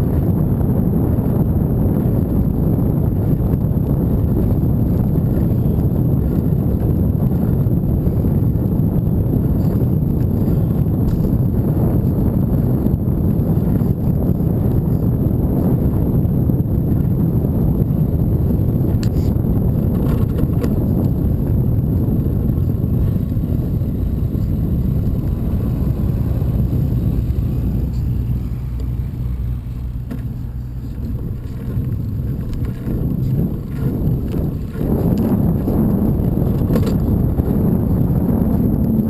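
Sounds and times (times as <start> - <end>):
road noise: 0.0 - 39.0
wind rumble on microphone: 0.0 - 39.0.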